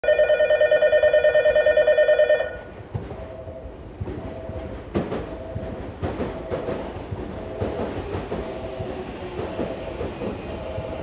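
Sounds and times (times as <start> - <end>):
train wheels clicking over rail joints: 2.7 - 11.0.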